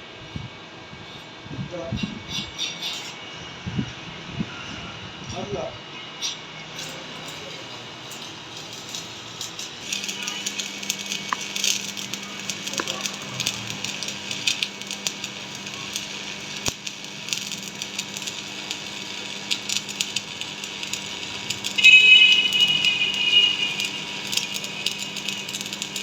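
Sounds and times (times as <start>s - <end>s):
metalworking crackling hiss: 1.0s - 3.4s, 4.6s - 26.0s
high squeal: 21.8s - 25.1s.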